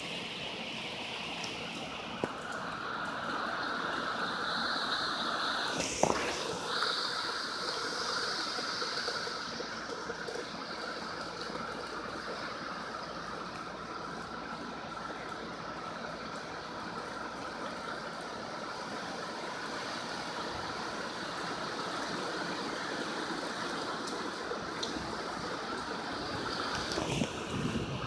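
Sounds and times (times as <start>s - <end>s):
heavy rain and wind rushing: 18.7s - 28.0s.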